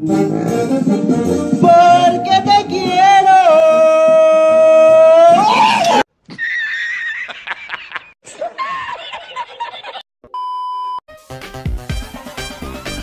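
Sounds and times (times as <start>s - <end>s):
man laughing high-pitched: 5.4s - 10.0s
short steady beep: 10.3s - 11.0s.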